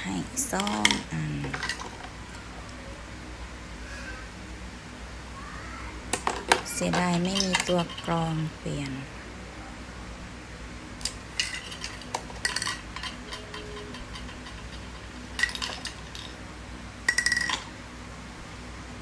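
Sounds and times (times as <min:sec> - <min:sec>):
hard objects clinking and clattering: 0:00.5 - 0:02.4, 0:06.1 - 0:09.0, 0:11.0 - 0:16.4, 0:17.1 - 0:17.7.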